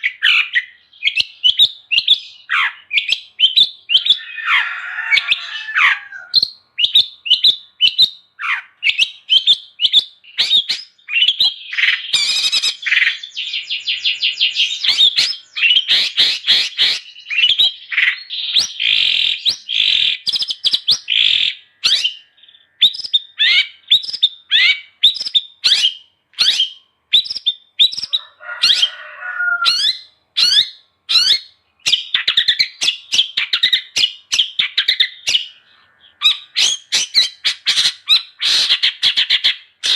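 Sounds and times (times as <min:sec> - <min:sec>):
bird whistled song: 0:00.0 - 0:35.6, 0:36.2 - 0:39.9
bird chattering trills: 0:00.0 - 0:39.9
harsh rasping bird call: 0:02.2 - 0:06.5, 0:14.7 - 0:23.9, 0:24.5 - 0:39.9.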